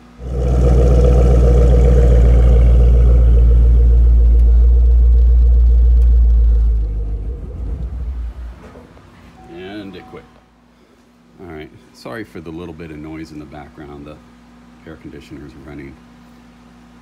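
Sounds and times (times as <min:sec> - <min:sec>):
car engine sputtering and dying: 0:00.0 - 0:09.0.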